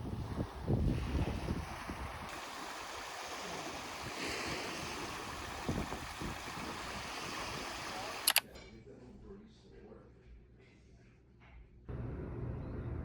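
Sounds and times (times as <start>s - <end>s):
rushing wind: 0.0s - 8.3s
wind gusting on microphone: 0.0s - 8.3s
sea water: 0.0s - 8.4s.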